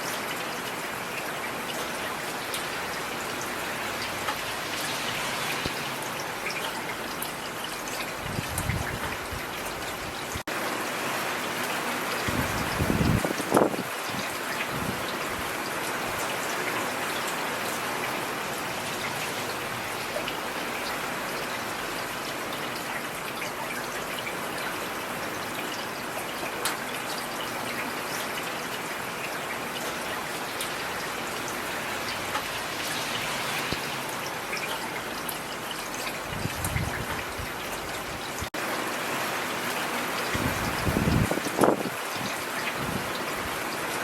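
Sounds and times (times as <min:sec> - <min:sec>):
rain falling on a street: 0:00.0 - 0:44.0.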